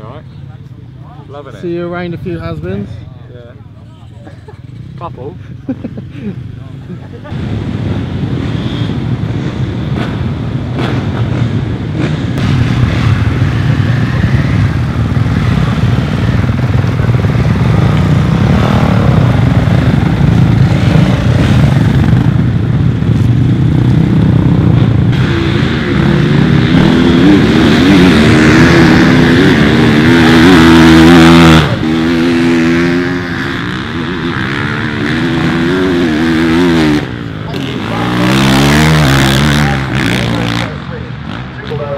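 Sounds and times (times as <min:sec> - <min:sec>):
motocross bike engines revving: 0:00.0 - 0:41.9
nearby bike engine wavering revs: 0:08.2 - 0:41.9.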